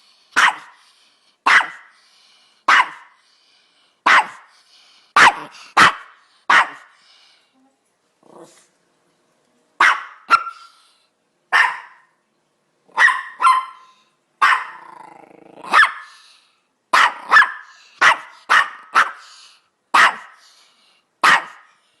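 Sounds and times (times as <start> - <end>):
small dog yapping: 0.4 - 0.7, 1.5 - 1.8, 2.7 - 3.1, 4.1 - 4.5, 9.8 - 10.7, 11.5 - 12.1, 12.9 - 14.9, 15.6 - 16.2, 17.0 - 19.2, 21.2 - 21.7
dog growling: 8.2 - 8.7, 14.7 - 15.8.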